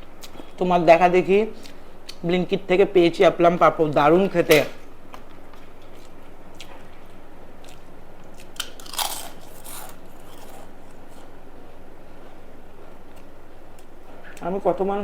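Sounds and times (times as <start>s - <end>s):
chewing: 5.1s - 11.3s
crunching crisp food: 5.5s - 11.4s.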